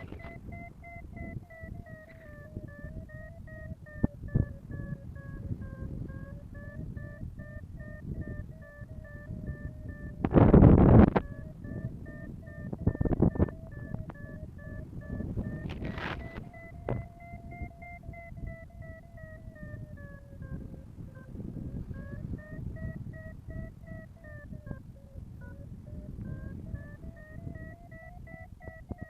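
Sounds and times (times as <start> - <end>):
variometer beeping: 0.0 - 29.0
wind buffeting microphone: 0.0 - 29.0.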